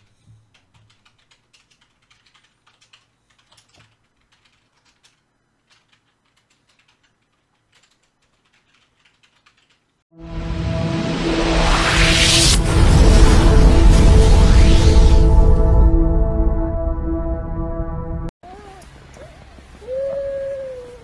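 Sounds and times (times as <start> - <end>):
keyboard typing: 0.5 - 9.9
music: 10.2 - 18.3
rising whoosh: 10.2 - 18.3.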